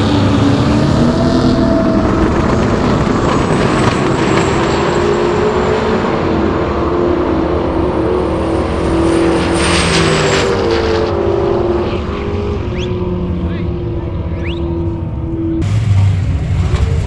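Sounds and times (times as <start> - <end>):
car engines at full throttle: 0.0 - 17.0.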